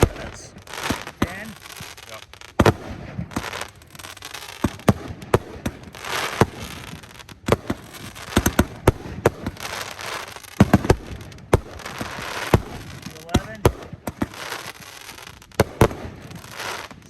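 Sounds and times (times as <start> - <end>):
fireworks bangs: 0.0 - 17.0
fireworks hissing: 0.0 - 17.0.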